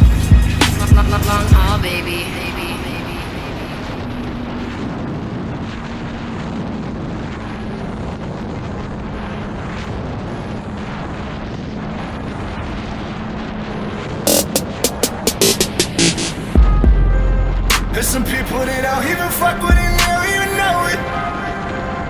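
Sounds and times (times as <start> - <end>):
wind rush over microphone: 0.0 - 22.0
motorcycle engine running: 19.7 - 20.0.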